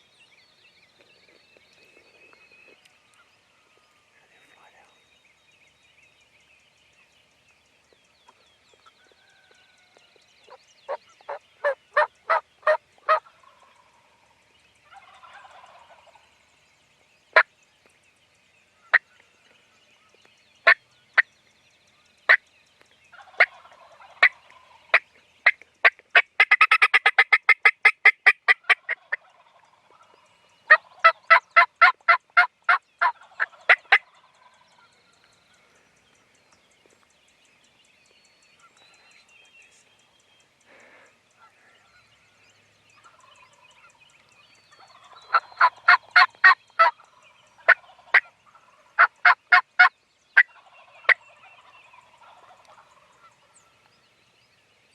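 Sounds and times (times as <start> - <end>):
turkey gobble: 10.5 - 14.2, 14.8 - 16.3, 23.1 - 25.6, 26.2 - 34.9, 43.0 - 44.0, 44.8 - 53.6
wild turkeys yelping: 10.5 - 16.3, 23.1 - 25.6, 26.2 - 34.9, 43.0 - 53.8.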